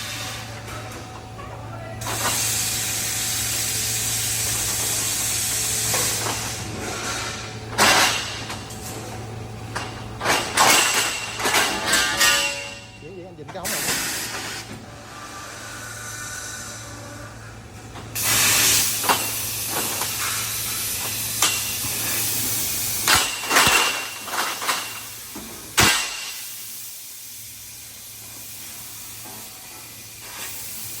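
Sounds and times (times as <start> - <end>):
cutting head gas jet hissing: 2.0 - 8.2, 13.0 - 17.4, 18.2 - 31.0.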